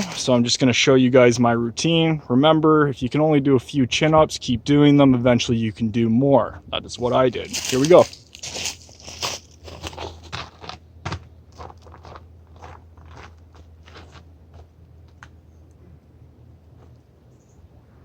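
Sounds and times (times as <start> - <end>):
footsteps crunching dry leaves: 7.4 - 14.6.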